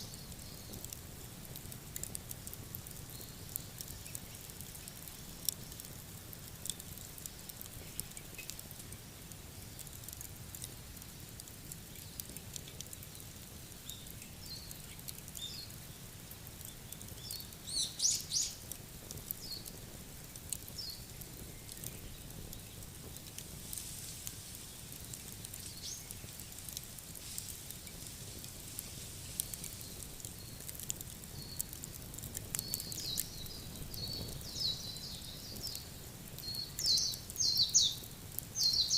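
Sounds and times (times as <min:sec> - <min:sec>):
campfire crackling: 0:00.0 - 0:38.9
birds chirping: 0:17.2 - 0:18.6, 0:36.4 - 0:38.0, 0:38.6 - 0:38.9.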